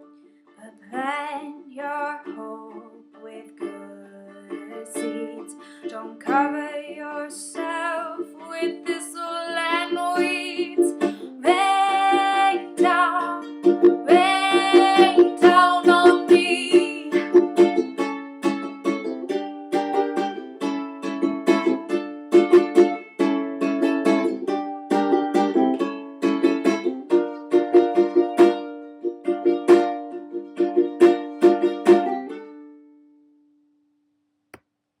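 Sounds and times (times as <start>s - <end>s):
strummed acoustic string instrument: 0.0s - 33.3s
wordless singing voice: 0.6s - 17.3s.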